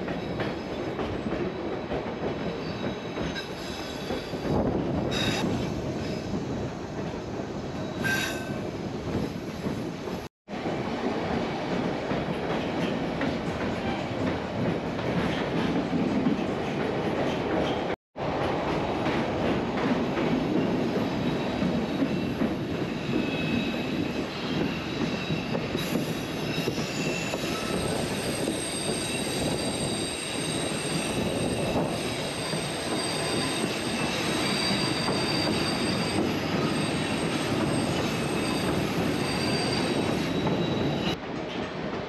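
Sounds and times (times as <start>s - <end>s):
wheels squealing on rails: 0.0s - 10.3s, 20.5s - 41.6s
train rumbling: 0.0s - 42.0s.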